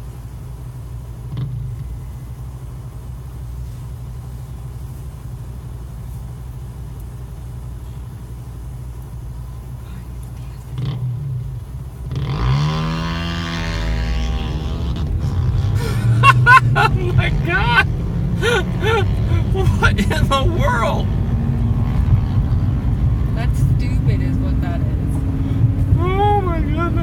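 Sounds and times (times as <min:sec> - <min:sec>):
vehicle engines idling: 0:00.0 - 0:27.0
engine revving and accelerating: 0:10.7 - 0:27.0.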